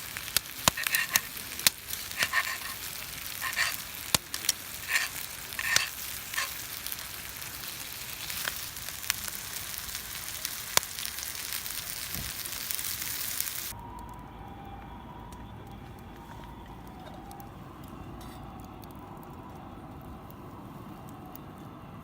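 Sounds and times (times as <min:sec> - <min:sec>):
fire popping: 0:00.0 - 0:22.0
food sizzling over campfire: 0:00.0 - 0:22.0.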